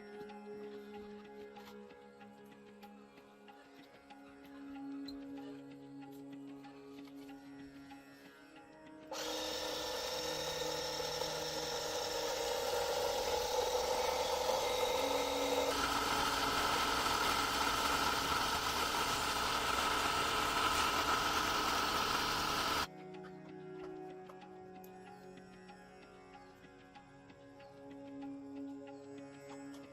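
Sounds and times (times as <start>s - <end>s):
power tool running on metal: 9.1s - 22.9s.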